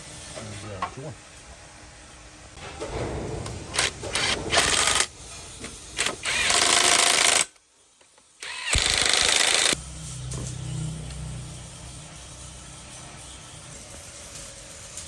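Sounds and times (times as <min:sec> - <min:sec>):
impact wrench hammering: 0:06.0 - 0:07.5, 0:08.7 - 0:09.8.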